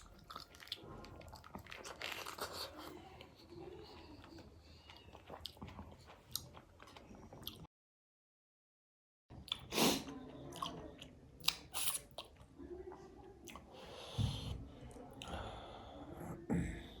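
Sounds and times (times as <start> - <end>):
chewing and biting food: 0.0 - 7.7.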